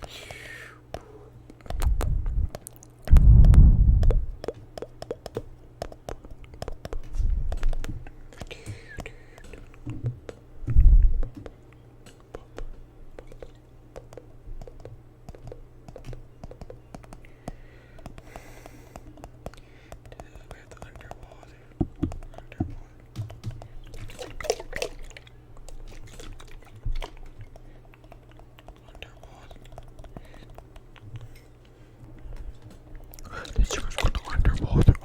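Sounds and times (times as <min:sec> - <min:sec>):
small sharp clicks and taps: 0:00.9 - 0:10.4, 0:11.2 - 0:24.2
deep low thuds and rumbles: 0:01.8 - 0:04.4, 0:10.6 - 0:11.4.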